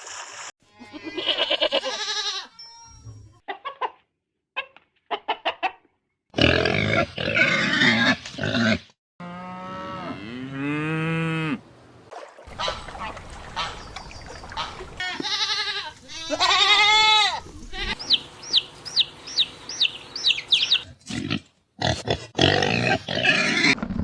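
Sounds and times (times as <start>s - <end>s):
farm animals calling: 0.8s - 2.6s, 12.5s - 20.9s
cow mooing: 9.2s - 11.6s.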